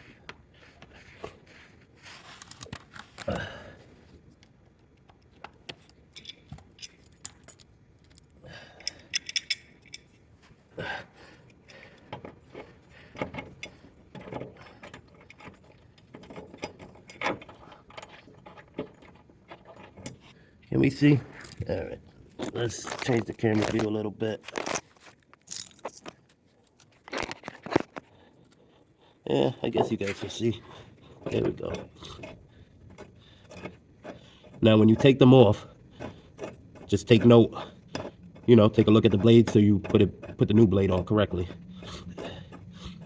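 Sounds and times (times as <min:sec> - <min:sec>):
metallic tool clinks and clicks: 0:08.8 - 0:10.1.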